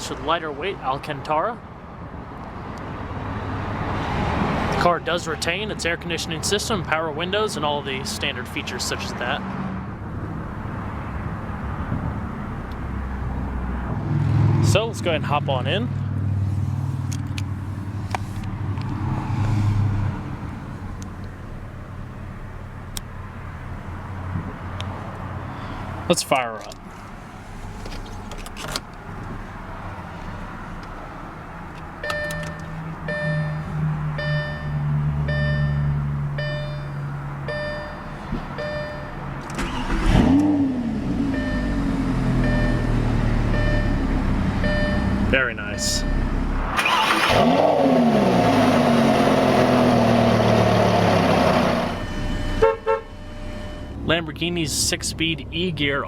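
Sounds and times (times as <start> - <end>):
electronic warning chime: 32.0 - 39.2, 41.4 - 41.8, 42.4 - 46.4, 52.0 - 54.2
car engine revving: 38.6 - 54.2
short pulsing tone: 51.9 - 54.0.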